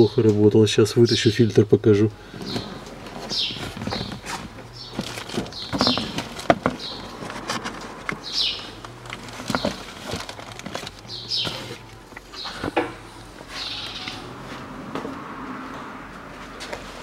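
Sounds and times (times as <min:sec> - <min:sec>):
bird chirping: 0:02.3 - 0:14.3.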